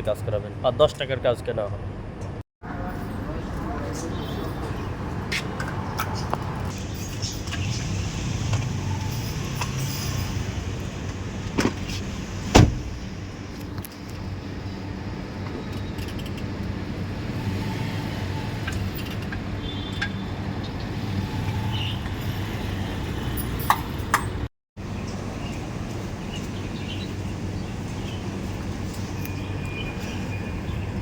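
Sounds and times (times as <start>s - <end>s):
motor vehicle rumble: 1.8s - 31.0s.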